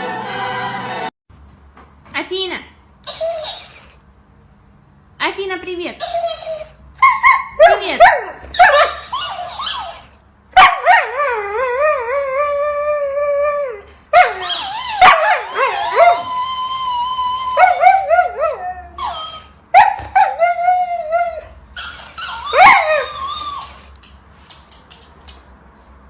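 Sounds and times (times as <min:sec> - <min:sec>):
dog howling: 0:10.8 - 0:19.5.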